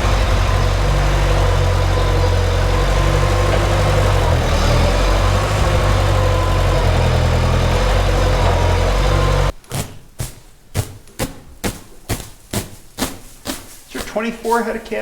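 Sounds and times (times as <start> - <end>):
tractor engine idling: 0.0 - 9.6
sharp crunches: 9.2 - 14.8.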